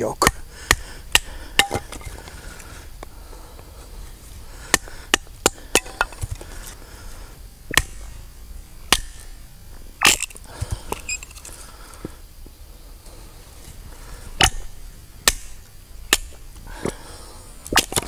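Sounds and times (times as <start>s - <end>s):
knife chopping into wet wood: 7.7s - 8.0s, 14.4s - 16.3s.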